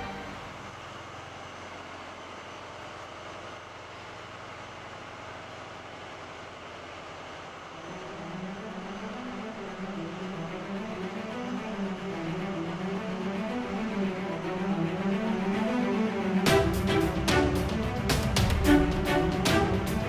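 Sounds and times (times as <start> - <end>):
wavering engine drone: 0.0 - 0.8, 7.6 - 20.0.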